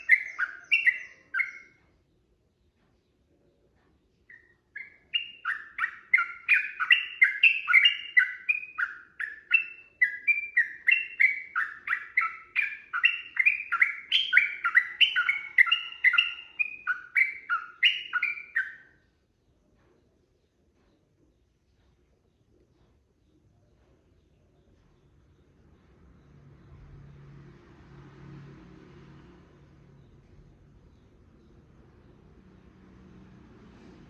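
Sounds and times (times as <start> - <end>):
bird singing whistled notes: 0.0 - 1.8, 4.2 - 19.0.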